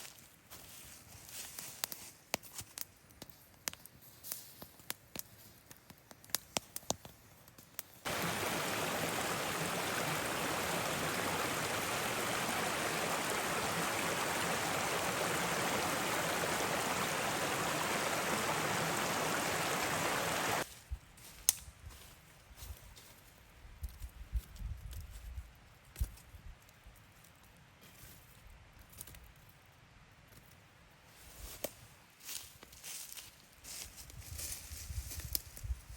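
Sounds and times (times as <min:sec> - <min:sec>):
rushing water: 0:08.1 - 0:20.6.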